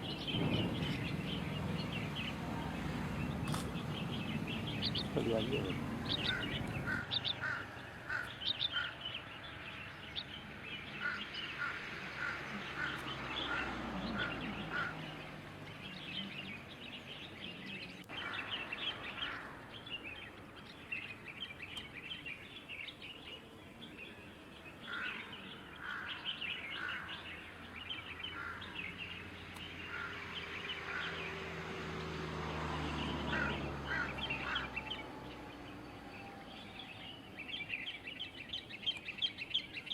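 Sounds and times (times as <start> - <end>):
small birds chirping: 0.0 - 31.5, 32.7 - 39.9.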